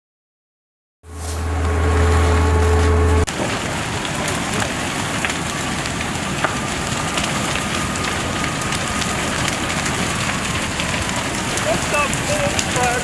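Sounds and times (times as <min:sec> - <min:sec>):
fire crackling and popping: 0:01.1 - 0:13.0.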